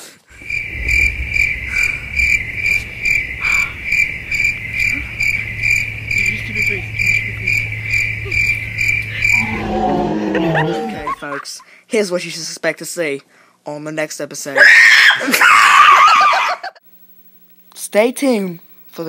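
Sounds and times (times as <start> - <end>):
low steady hum: 0.3 - 11.4
high-pitched chirping: 0.4 - 10.2.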